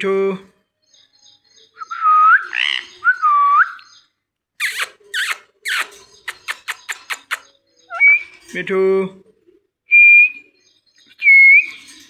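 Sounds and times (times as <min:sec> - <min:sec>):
parrot harsh calls: 0:02.4 - 0:03.0, 0:04.6 - 0:08.1.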